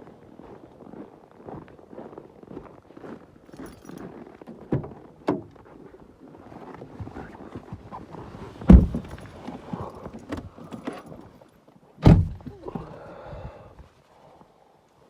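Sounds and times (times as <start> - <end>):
heavy thumps: 8.6 - 9.2, 12.0 - 12.5.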